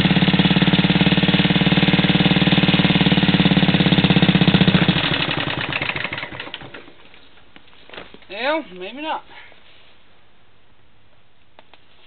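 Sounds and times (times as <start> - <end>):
single-cylinder engine running: 0.0 - 6.9.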